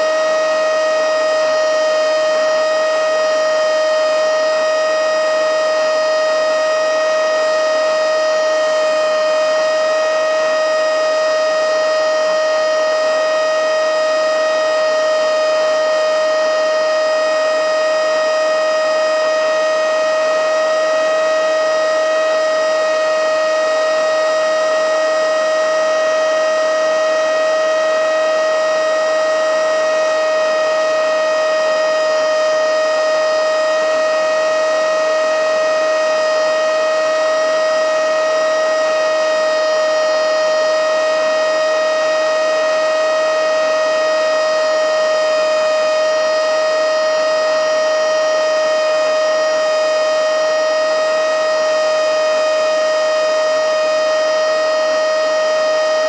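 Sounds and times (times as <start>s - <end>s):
mini vacuum cleaner whining: 7.4s - 11.0s, 12.0s - 46.1s, 47.5s - 50.3s.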